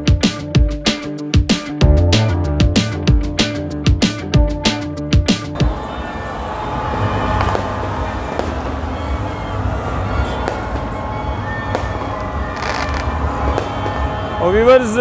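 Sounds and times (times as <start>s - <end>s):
fireworks crackling: 6.9s - 9.4s, 10.2s - 11.0s, 11.6s - 14.1s
firework shells bursting bangs: 7.3s - 9.2s, 10.4s - 11.0s, 11.7s - 14.2s.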